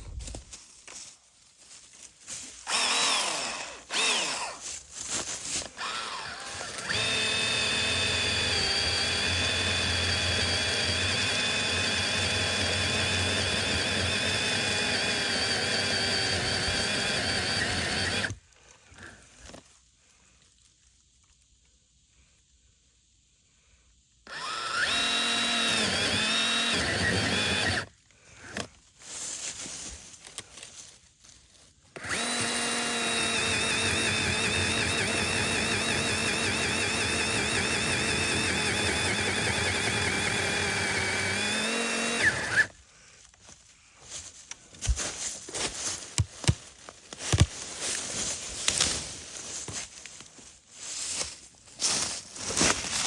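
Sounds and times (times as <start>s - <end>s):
rustling: 0.0s - 7.7s, 28.0s - 32.9s, 42.7s - 53.0s
pole saw motor whining: 2.6s - 4.8s, 5.5s - 18.4s, 24.3s - 28.7s, 31.9s - 42.8s.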